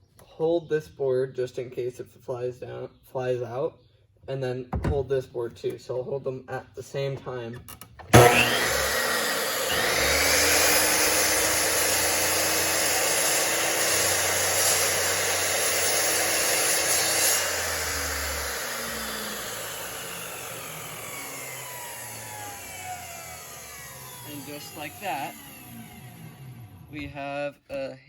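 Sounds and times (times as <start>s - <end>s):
chop saw cutting wood: 8.1s - 26.9s
saw blade winding down: 8.1s - 27.0s.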